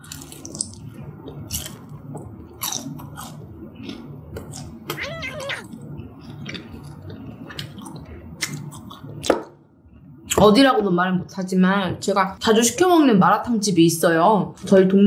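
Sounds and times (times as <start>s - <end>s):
chewing and crunching fried food: 0.0s - 9.3s.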